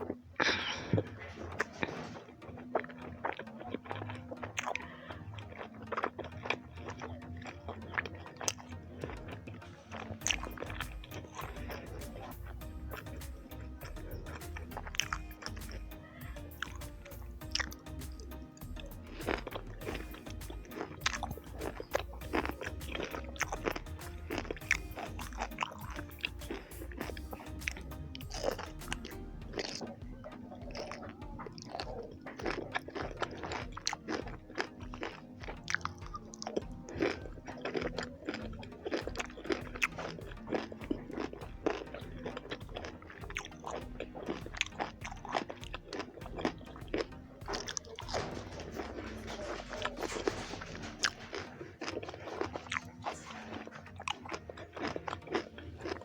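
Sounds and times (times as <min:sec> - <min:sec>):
background music: 0:00.0 - 0:56.0
person chewing crunchy food: 0:00.0 - 0:56.0.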